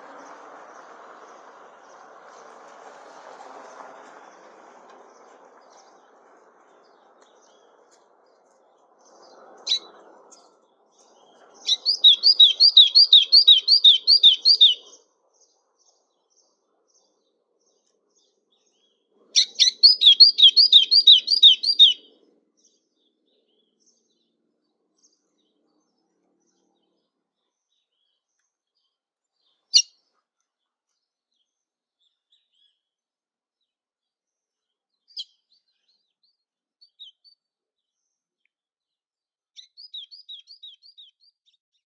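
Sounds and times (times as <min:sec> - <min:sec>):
songbird whistled song: 0:09.1 - 0:17.2, 0:18.7 - 0:22.2, 0:35.1 - 0:37.4, 0:39.6 - 0:41.6
bird call notes: 0:11.7 - 0:14.8, 0:19.4 - 0:22.0.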